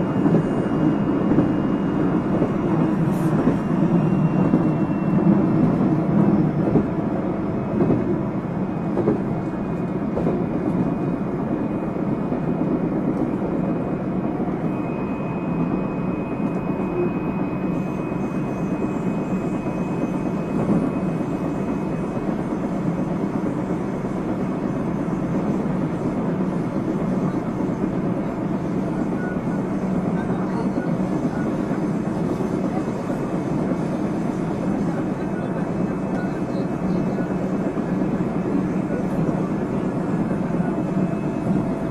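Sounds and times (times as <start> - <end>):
train wheels rumbling on rail: 0.0 - 41.9
faint high whine: 14.6 - 22.2.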